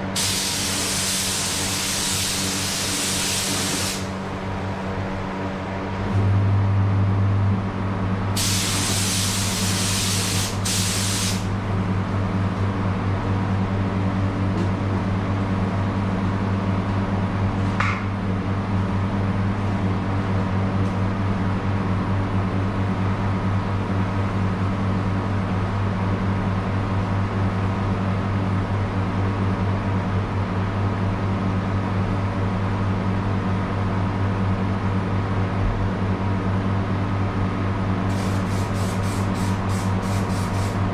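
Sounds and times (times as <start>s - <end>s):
spray gun hissing: 0.1s - 4.3s, 8.4s - 11.5s, 38.1s - 40.9s
low machine hum: 2.7s - 9.9s, 34.7s - 40.9s.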